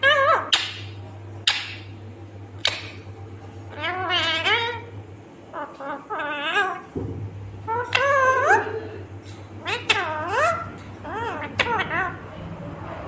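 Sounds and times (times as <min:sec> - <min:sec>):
parakeet chirp: 0:00.0 - 0:01.9, 0:03.7 - 0:04.9, 0:07.6 - 0:08.8, 0:09.6 - 0:12.5
parakeet wavering calls: 0:00.0 - 0:01.9, 0:03.7 - 0:04.9, 0:05.5 - 0:12.5
steady low hum: 0:00.0 - 0:13.0.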